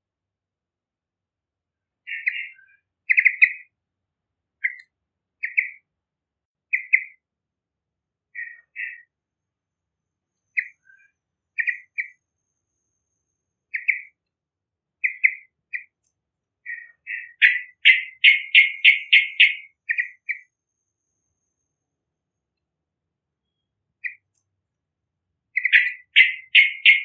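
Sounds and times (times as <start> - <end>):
bulbul chirping: 2.1 - 3.7, 5.4 - 5.8, 6.7 - 7.2, 11.6 - 12.2, 13.7 - 14.2, 15.0 - 15.9, 16.7 - 20.4, 25.6 - 27.0.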